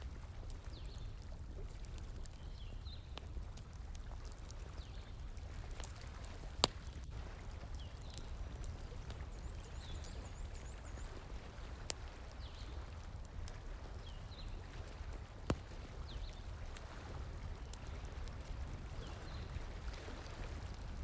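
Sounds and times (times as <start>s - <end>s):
campfire crackling: 0.0s - 21.0s
flowing water: 0.0s - 21.0s
fire pops: 5.0s - 9.0s, 11.8s - 19.8s.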